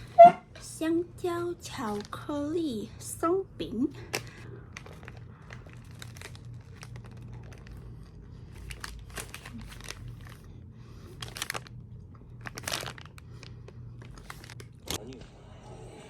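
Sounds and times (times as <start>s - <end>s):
low steady hum: 0.0s - 16.0s
food wrapping crinkling: 4.0s - 15.0s.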